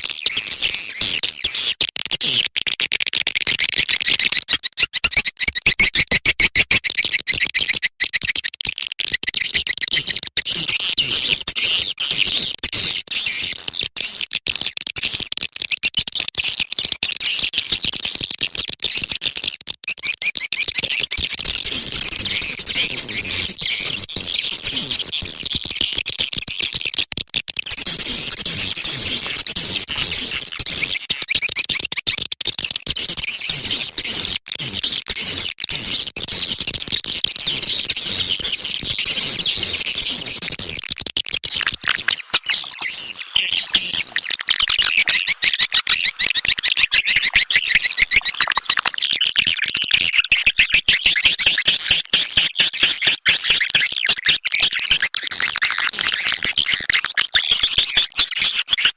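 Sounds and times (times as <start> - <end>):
swiftlets twittering and chirping: 3.4 - 12.2, 20.0 - 23.9, 41.2 - 58.9.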